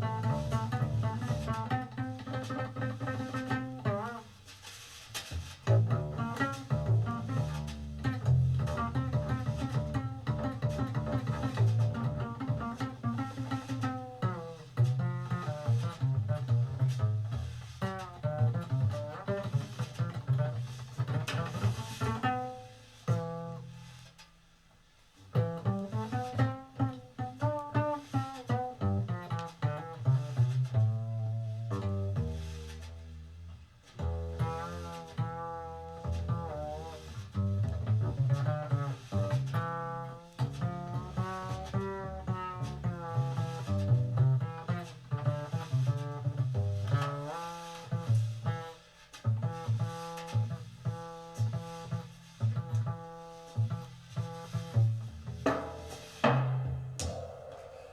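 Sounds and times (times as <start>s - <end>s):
jazz double bass solo: 0.0s - 57.9s.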